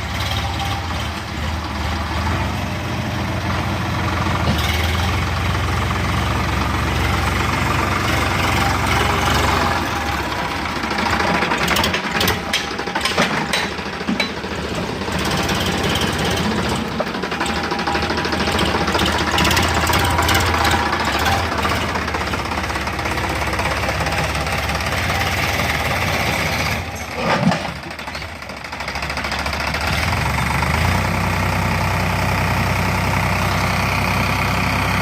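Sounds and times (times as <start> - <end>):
tractor engine running: 0.0 - 35.0
sharp knocks and rattles: 11.0 - 25.1.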